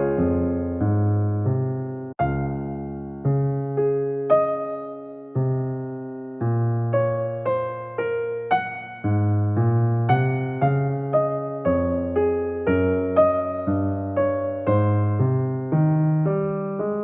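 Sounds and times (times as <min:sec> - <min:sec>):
electric piano chords: 0:00.0 - 0:17.0.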